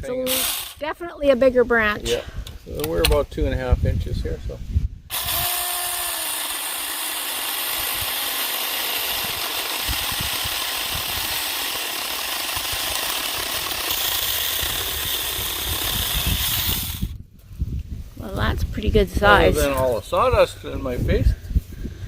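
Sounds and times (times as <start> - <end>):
electric chainsaw cutting branch: 0.1 - 0.8, 5.1 - 17.2.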